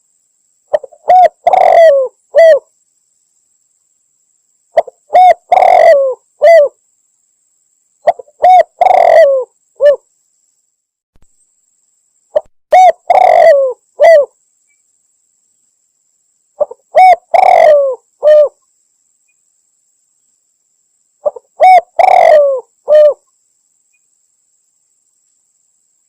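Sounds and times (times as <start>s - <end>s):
dove cooing: 0.7s - 2.7s, 4.8s - 6.8s, 8.0s - 10.0s, 12.4s - 14.4s, 16.6s - 18.6s, 21.2s - 23.2s.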